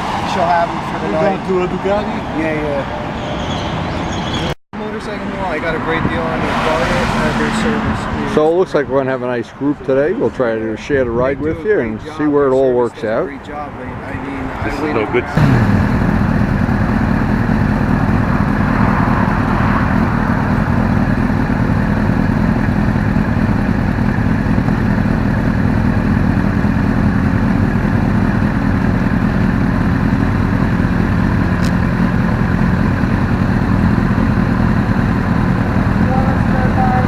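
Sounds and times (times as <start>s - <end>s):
motorcycle engine running: 15.4s - 37.0s.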